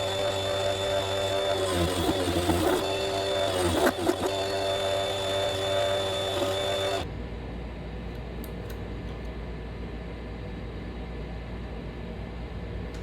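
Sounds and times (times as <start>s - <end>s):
wood lathe motor whine: 0.0s - 7.1s.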